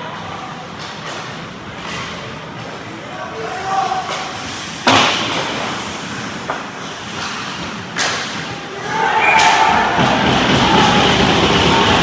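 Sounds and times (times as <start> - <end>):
hockey puck banging rink boards: 0.8 - 12.0
rink noise: 3.4 - 12.0.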